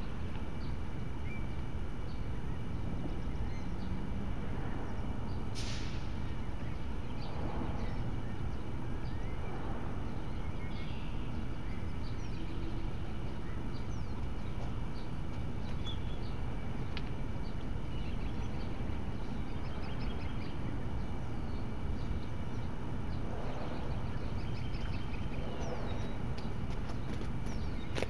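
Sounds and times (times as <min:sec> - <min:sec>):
birds chirping: 0:00.0 - 0:28.0
brief hiss: 0:05.6 - 0:06.1.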